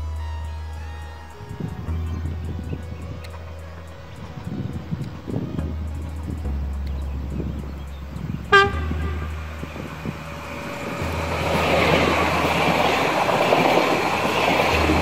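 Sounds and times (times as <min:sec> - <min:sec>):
train passing close by: 0:07.8 - 0:15.0.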